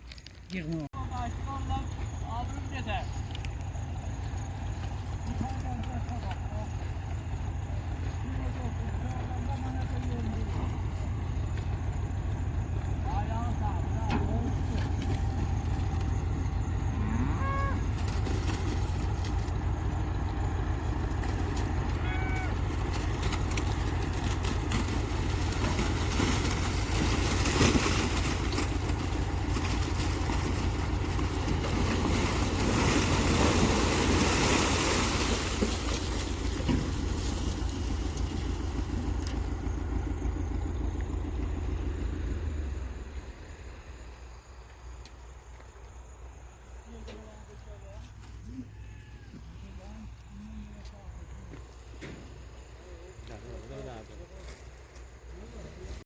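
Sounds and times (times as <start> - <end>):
vehicle engine running: 0.0 - 56.0
short pitched calls: 21.9 - 22.9.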